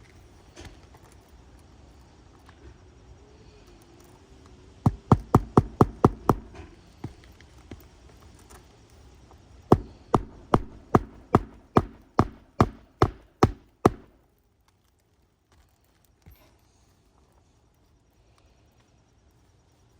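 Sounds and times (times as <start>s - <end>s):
hammer blows: 4.9s - 6.7s, 9.7s - 14.1s.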